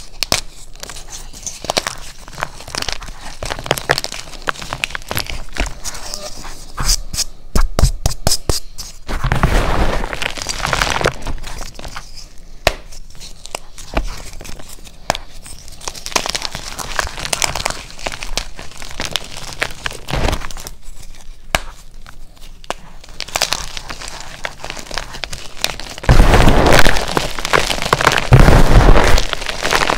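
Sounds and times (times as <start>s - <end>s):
chalk block crunching and snapping: 0.0s - 5.9s, 7.6s - 29.9s.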